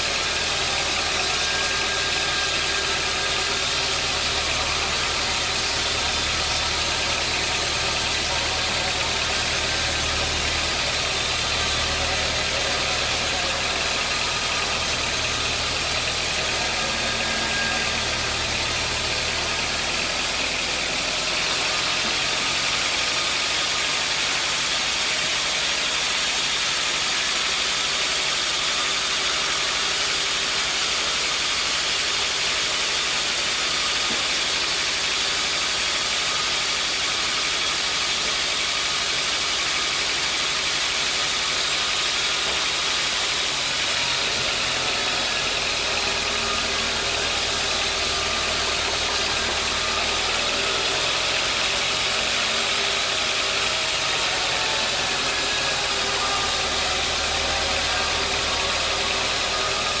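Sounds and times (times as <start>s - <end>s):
deep drone: 0.0s - 24.8s, 43.5s - 60.0s
sawmill machinery running: 0.0s - 60.0s.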